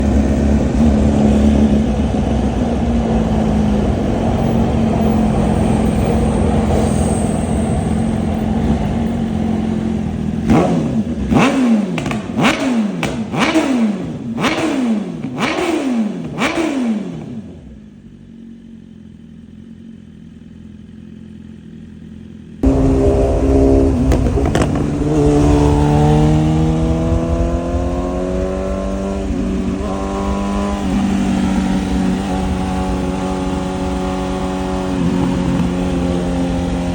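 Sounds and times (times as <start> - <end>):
motorcycle engine revving: 0.0 - 36.9
exhaust crackle: 22.6 - 36.9.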